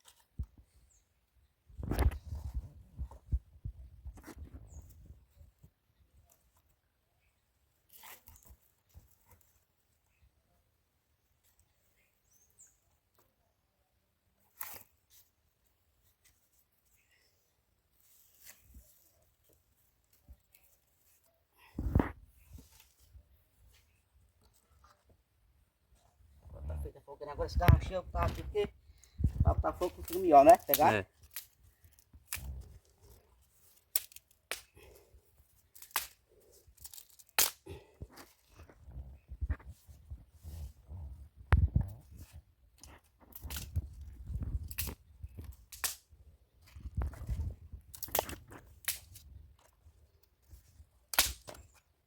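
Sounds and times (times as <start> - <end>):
dry sticks cracking: 27.6 - 35.0, 35.6 - 38.7, 42.8 - 49.8, 51.1 - 51.8.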